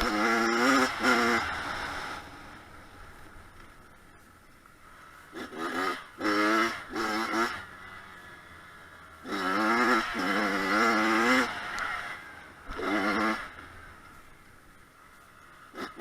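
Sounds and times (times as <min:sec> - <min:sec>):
dirt bike engine revving: 0:00.0 - 0:03.6, 0:04.8 - 0:16.0.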